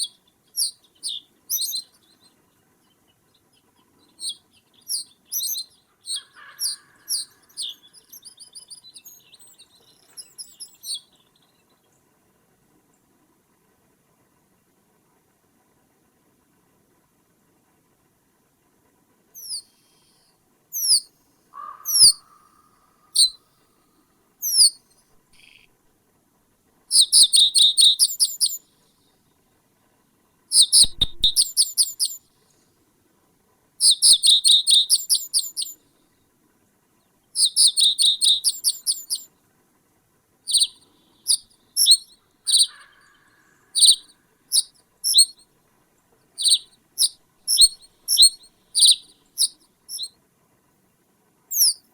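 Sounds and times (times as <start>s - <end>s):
bird calling: 4.2s - 9.4s, 19.4s - 23.4s, 24.4s - 24.8s, 26.9s - 28.6s, 30.5s - 32.2s, 33.8s - 35.8s, 37.4s - 39.2s, 40.5s - 45.4s, 46.4s - 50.1s, 51.5s - 51.8s.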